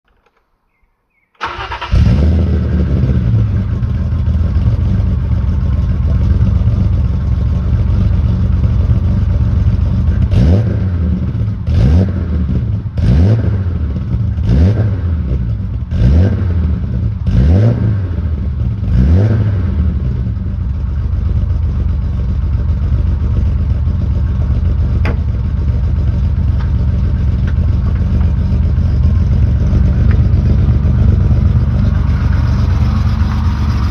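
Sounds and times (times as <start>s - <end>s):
car engine starting and idling: 0.1s - 33.9s
engine revving: 1.4s - 5.3s, 7.8s - 20.5s, 25.0s - 33.9s.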